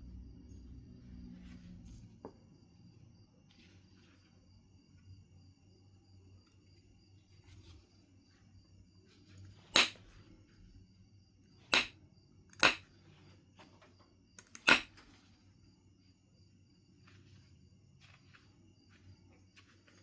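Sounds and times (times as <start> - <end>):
billet striking flint: 9.5 - 10.4, 11.6 - 13.0, 14.4 - 15.2.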